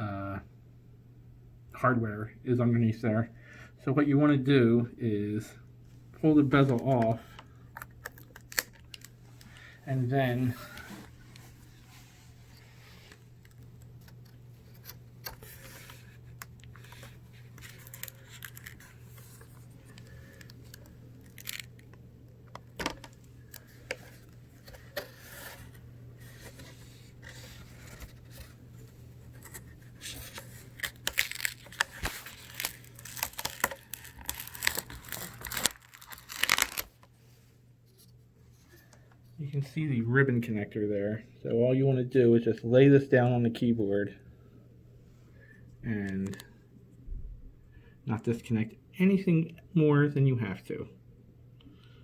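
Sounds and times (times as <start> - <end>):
steady low hum: 0.0 - 52.0
plastic bezel clicking and tearing: 7.7 - 9.5, 19.9 - 24.0, 30.8 - 36.9.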